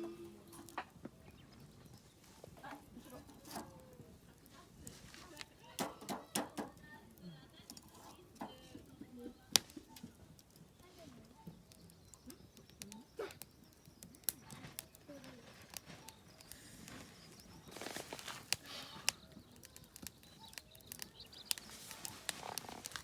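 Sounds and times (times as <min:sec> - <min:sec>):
rustling: 0:00.0 - 0:06.0, 0:14.4 - 0:19.2, 0:20.5 - 0:23.0
sharp clicks and crackles: 0:00.4 - 0:07.0, 0:07.6 - 0:23.0.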